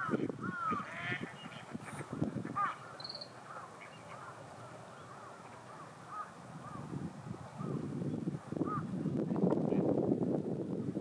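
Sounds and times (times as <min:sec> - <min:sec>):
ducks calling: 0:00.0 - 0:06.9.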